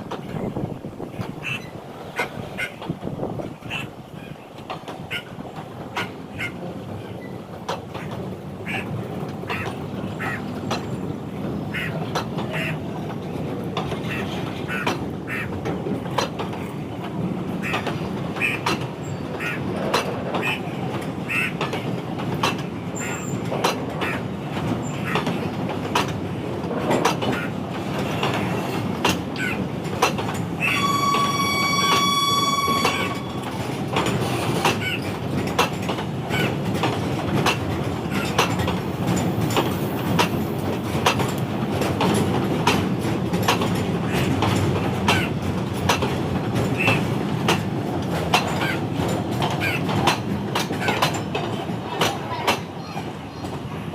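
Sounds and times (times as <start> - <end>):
freight train rumbling past: 0.0 - 53.9
wheels clicking over rail joints: 0.0 - 53.9
high steady tone: 30.6 - 34.2.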